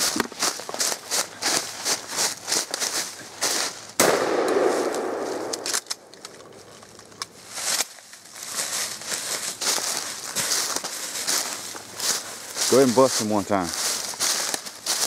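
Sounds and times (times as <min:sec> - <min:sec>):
shotgun shot: 0:04.0 - 0:06.1.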